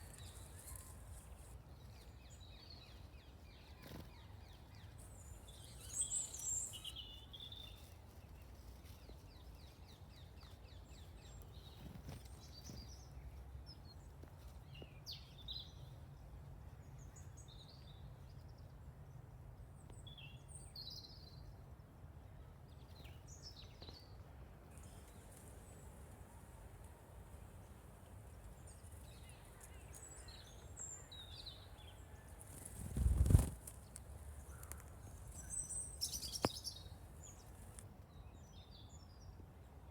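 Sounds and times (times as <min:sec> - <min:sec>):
birds chirping: 0:28.2 - 0:37.8.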